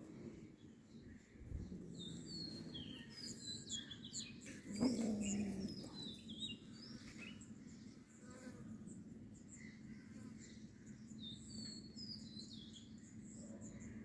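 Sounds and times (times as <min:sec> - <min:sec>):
small birds chirping: 0:00.0 - 0:14.0
short low growl: 0:04.6 - 0:06.1.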